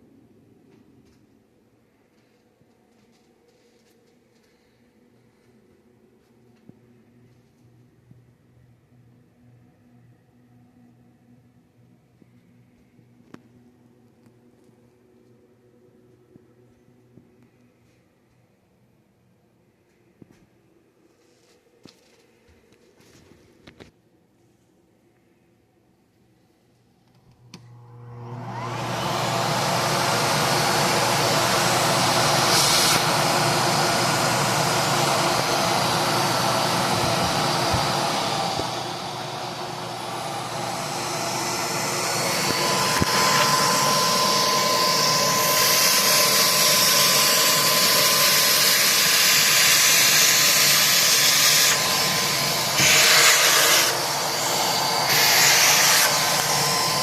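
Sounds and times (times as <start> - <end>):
steady whine: 27.1 - 57.0
vacuum cleaner running: 27.3 - 57.0.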